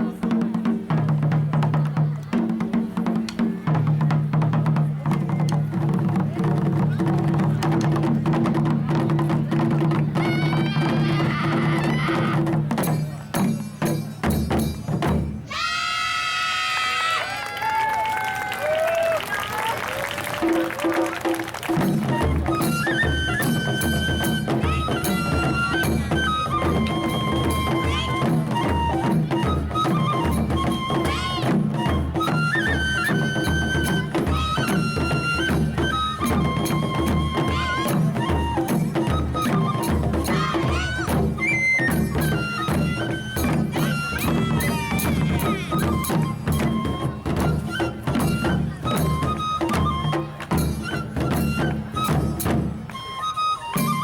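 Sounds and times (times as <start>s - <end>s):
taiko drumming: 0.0s - 15.5s, 20.4s - 53.1s
folk melody of high notes: 20.4s - 54.0s.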